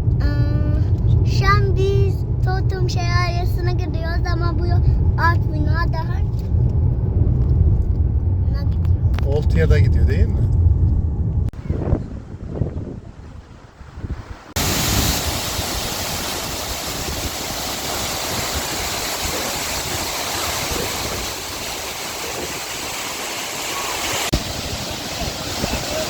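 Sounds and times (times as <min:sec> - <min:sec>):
waterfall rushing: 0:14.6 - 0:26.0.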